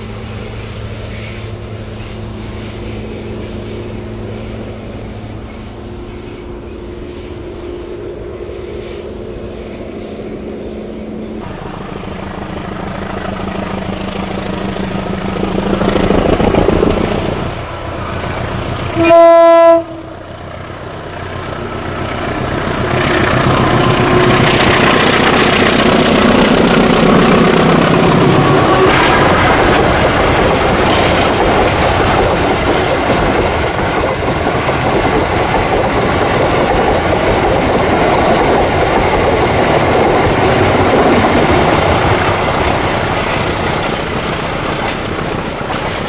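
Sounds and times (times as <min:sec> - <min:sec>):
diesel train engine: 0:00.0 - 0:46.0
wheels clattering over rail joints: 0:12.4 - 0:19.0, 0:20.5 - 0:46.0
train horn blast: 0:18.9 - 0:20.2.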